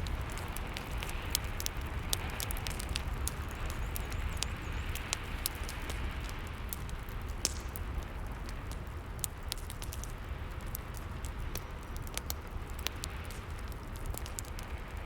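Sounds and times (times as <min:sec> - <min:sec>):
fireplace fire crackling: 0:00.0 - 0:15.0.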